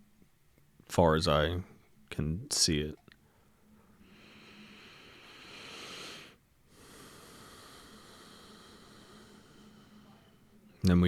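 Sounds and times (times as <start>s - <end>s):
man breathing slowly: 3.2s - 10.8s.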